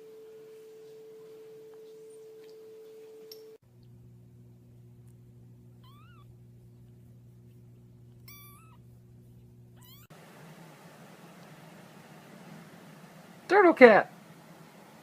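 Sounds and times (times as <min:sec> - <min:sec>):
faint low hum: 0:00.0 - 0:15.0
cat meowing: 0:05.8 - 0:06.3, 0:08.2 - 0:08.8, 0:09.8 - 0:10.1.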